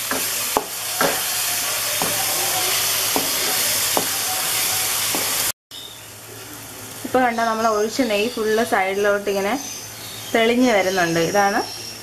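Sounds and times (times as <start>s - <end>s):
wooden spoon knocking and scraping pan: 0.0s - 1.3s, 1.9s - 4.2s, 5.1s - 5.4s
halwa sizzling in ghee: 0.0s - 12.0s.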